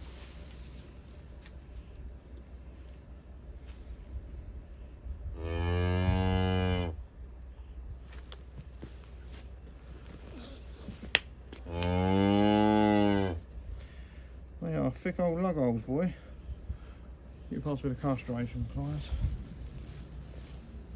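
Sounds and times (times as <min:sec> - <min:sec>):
cattle mooing: 0:05.4 - 0:07.0, 0:11.7 - 0:13.4.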